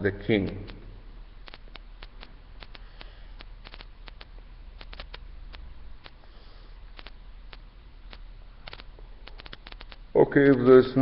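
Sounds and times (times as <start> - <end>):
sharp clicks: 1.4 - 6.2, 7.0 - 10.6.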